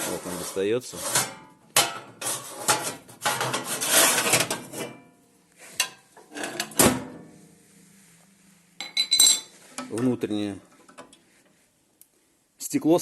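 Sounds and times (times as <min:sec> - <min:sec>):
metal ash pan scraping: 0:00.0 - 0:05.0, 0:05.6 - 0:07.3
metal clunk: 0:05.8 - 0:07.3.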